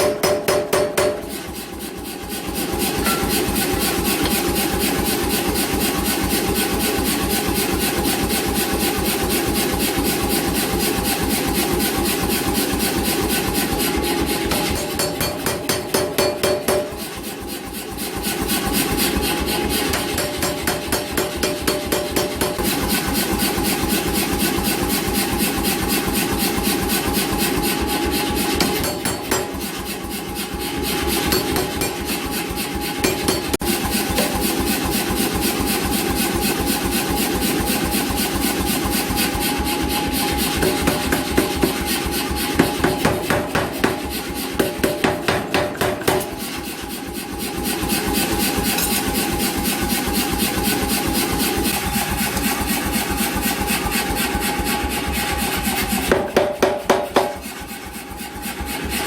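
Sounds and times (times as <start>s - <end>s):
pneumatic power hammer striking: 0.0s - 1.6s, 2.6s - 6.6s, 14.3s - 17.5s, 18.4s - 24.7s, 28.3s - 30.1s, 30.8s - 36.7s, 40.4s - 46.7s, 48.0s - 54.4s, 55.7s - 57.7s.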